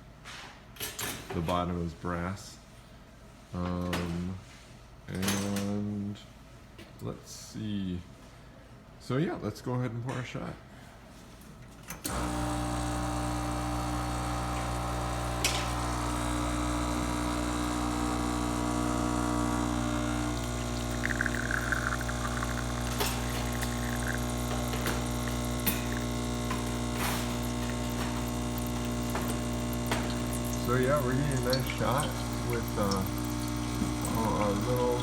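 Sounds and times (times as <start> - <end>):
espresso machine pump humming: 12.1 - 35.0
liquid trickling: 15.7 - 35.0.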